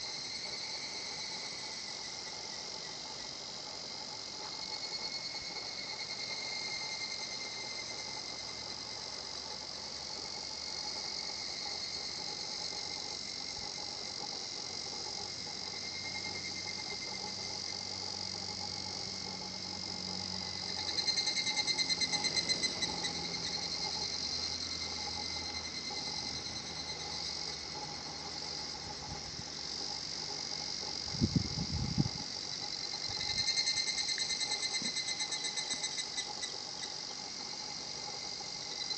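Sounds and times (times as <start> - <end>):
cicadas calling: 0.0 - 38.9.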